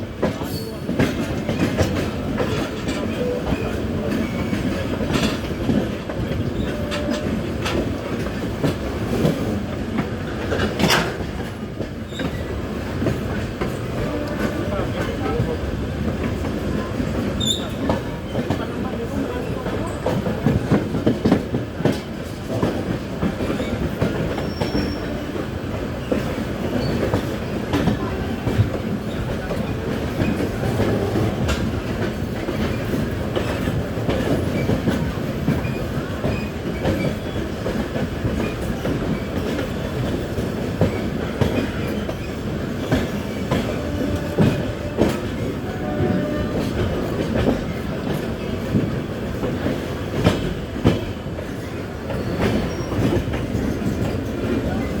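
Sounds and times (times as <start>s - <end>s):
train running at speed: 0.0s - 55.0s.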